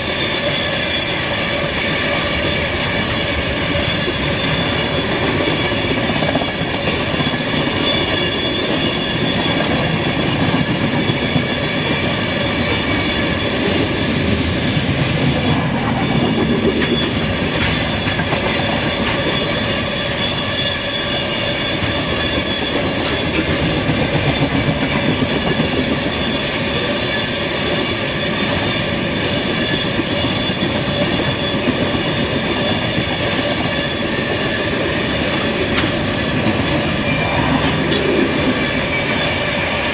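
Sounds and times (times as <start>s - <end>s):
train wheels rumbling on rail: 0.0s - 39.9s
steady high tones: 30.2s - 39.9s.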